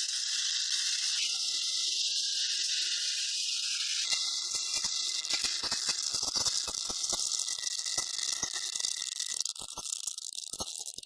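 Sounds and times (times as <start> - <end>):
rapid irregular rattling and clicking: 4.5 - 11.0.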